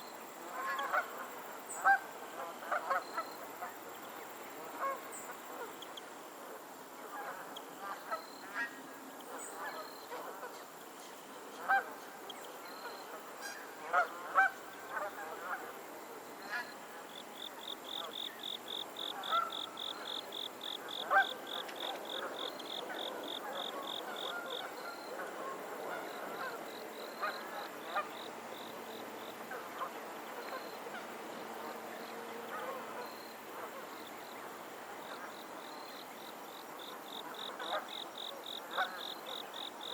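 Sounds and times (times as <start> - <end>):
geese honking: 19.1 - 19.6.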